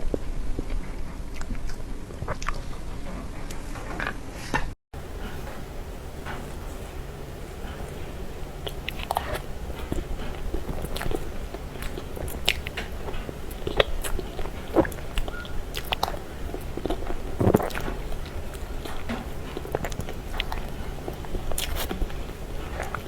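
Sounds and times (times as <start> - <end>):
faint low hum: 5.0 - 23.0
wet chewing and lip smacks: 5.0 - 23.0.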